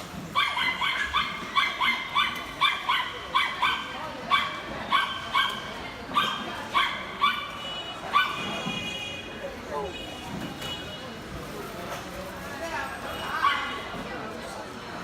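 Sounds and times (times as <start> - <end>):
dog yipping: 0.4 - 8.4.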